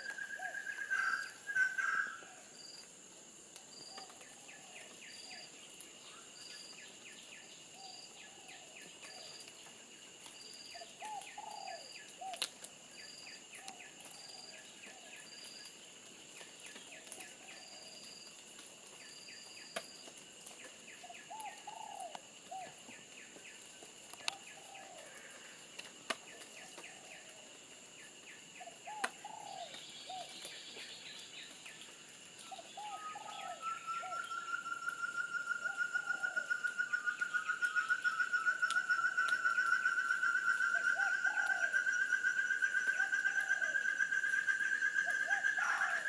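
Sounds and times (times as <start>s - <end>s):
insects high-pitched tones: 0.0s - 2.9s, 32.4s - 46.0s.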